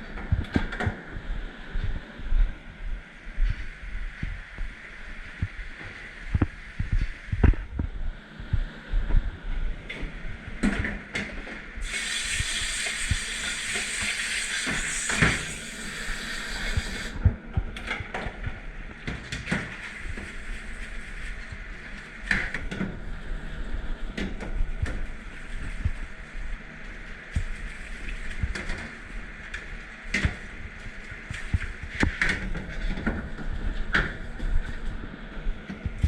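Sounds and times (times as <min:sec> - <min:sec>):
water spray hissing: 0:11.8 - 0:17.2.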